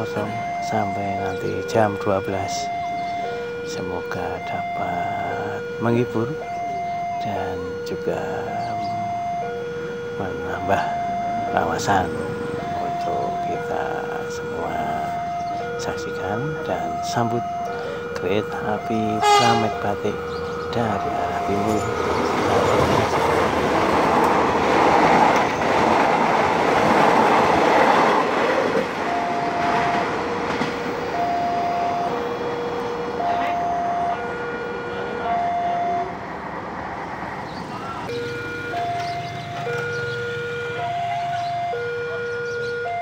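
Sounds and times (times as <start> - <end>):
two-tone crossing warning alarm: 0.0 - 43.0
train passing at speed: 21.0 - 38.1.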